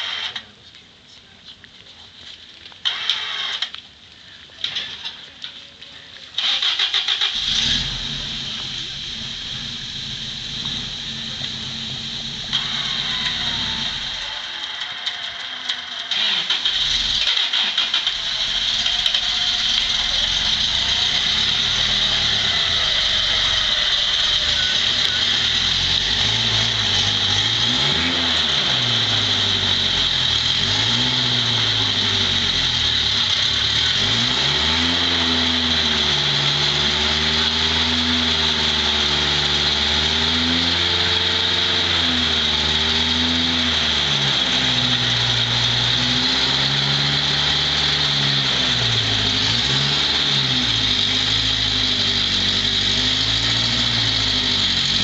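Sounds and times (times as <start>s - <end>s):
engine revving under load: 6.4s - 55.0s
high-pitched whine: 18.0s - 39.1s.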